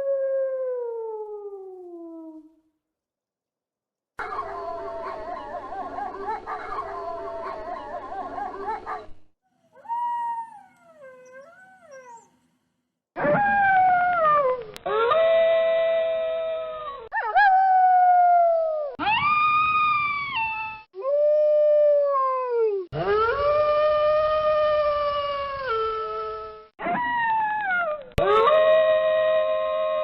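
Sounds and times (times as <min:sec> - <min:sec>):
wolves howling: 0:04.2 - 0:09.1, 0:09.7 - 0:12.3.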